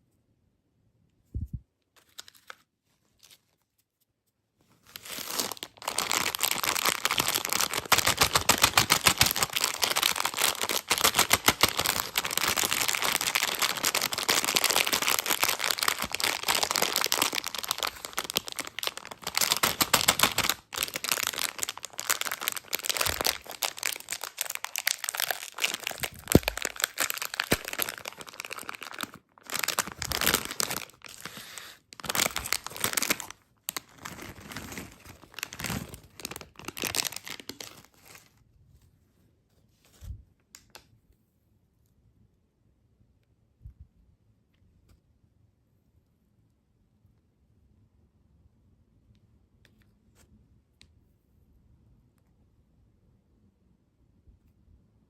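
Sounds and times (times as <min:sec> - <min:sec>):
packaging crinkling and tearing: 0:02.0 - 0:03.6, 0:04.8 - 0:38.4.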